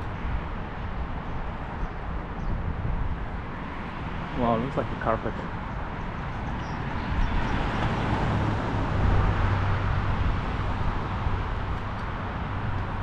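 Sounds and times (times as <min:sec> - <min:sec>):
rumble of passing cars: 0:00.0 - 0:13.0.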